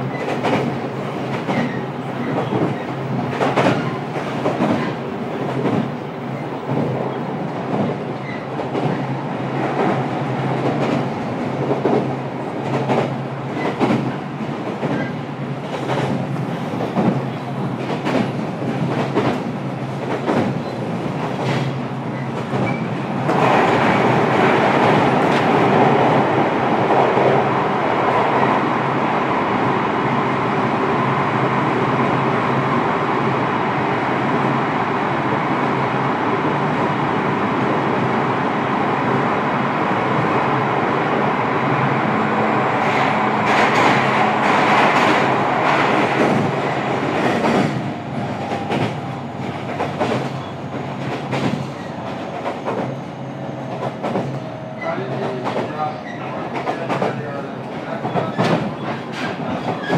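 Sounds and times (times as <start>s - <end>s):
train wheels on rails: 0.0s - 29.8s, 41.8s - 59.9s.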